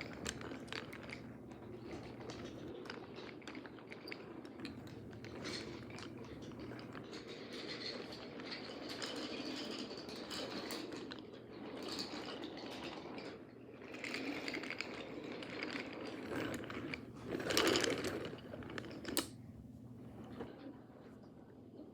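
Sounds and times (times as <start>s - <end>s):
toy trains rattling on wooden track: 0.0s - 19.3s.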